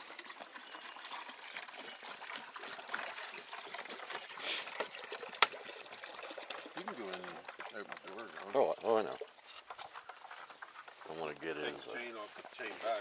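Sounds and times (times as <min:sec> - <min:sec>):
calf suckling and slurping: 0:00.0 - 0:12.6.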